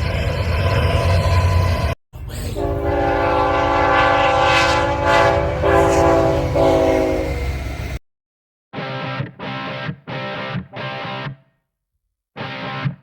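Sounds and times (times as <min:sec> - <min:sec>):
low rumble of train: 0:00.0 - 0:08.0
locomotive air horn chord: 0:02.4 - 0:07.8.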